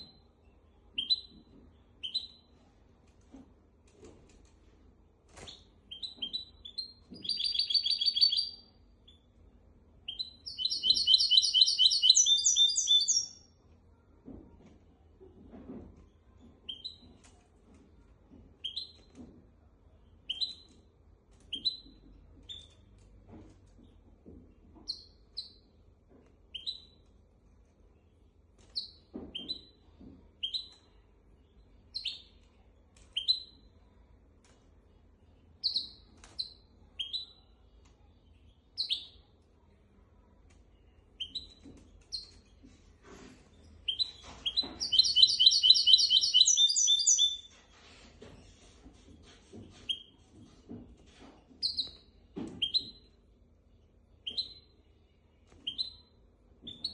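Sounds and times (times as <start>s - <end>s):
finch chirping and trilling: 5.9s - 8.6s, 10.1s - 13.4s, 43.8s - 47.5s, 51.6s - 52.0s.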